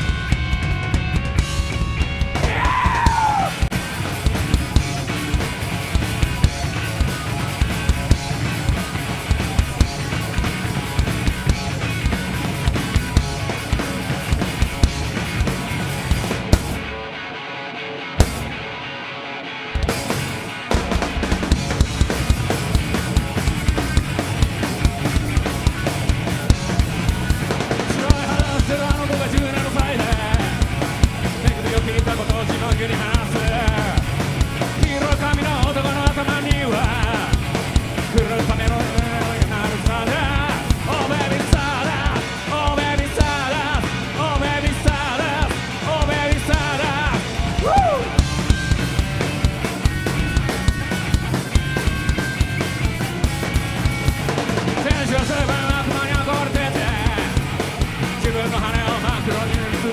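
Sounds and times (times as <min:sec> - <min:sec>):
fast driving drum kit: 0:00.0 - 0:17.1, 0:18.2 - 0:18.8, 0:19.8 - 0:59.9
rock band playing: 0:00.0 - 0:59.9.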